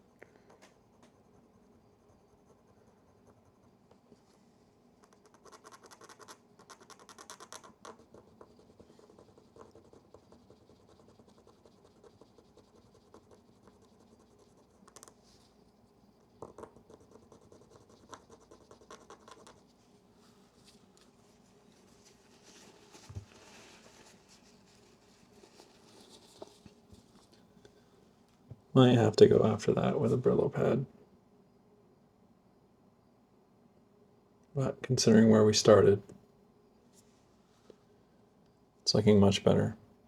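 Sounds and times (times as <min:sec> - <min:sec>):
scratching on metal contact: 0:17.5 - 0:27.4.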